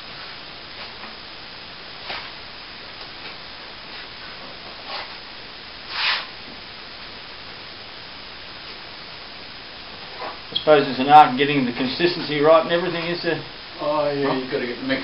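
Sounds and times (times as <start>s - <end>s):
steady background hiss: 0.0s - 15.0s
trowel swishing across wet plaster: 5.9s - 6.3s.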